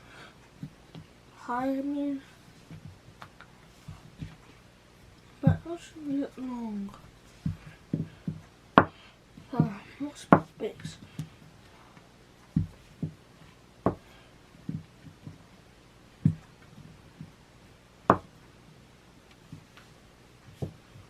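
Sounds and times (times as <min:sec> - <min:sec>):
play dough knocking on tabletop: 0:18.1 - 0:18.3.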